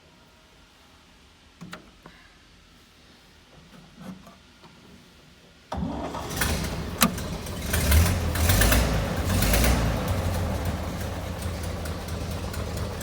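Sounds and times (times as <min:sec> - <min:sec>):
car engine starting: 0:05.7 - 0:13.0.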